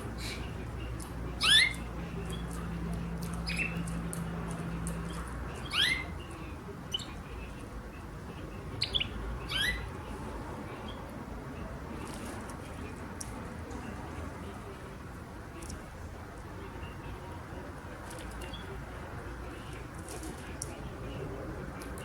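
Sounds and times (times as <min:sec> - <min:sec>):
canary chirping: 0:00.2 - 0:07.6, 0:08.6 - 0:11.1.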